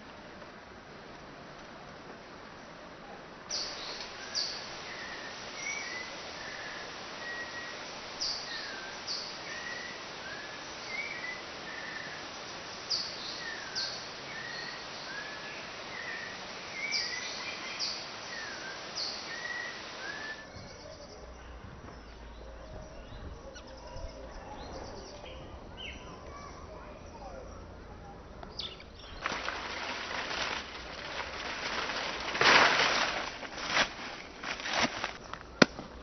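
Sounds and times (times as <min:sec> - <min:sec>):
steady hiss: 0:00.0 - 0:20.5, 0:28.9 - 0:36.0
forest birds singing: 0:03.5 - 0:36.0.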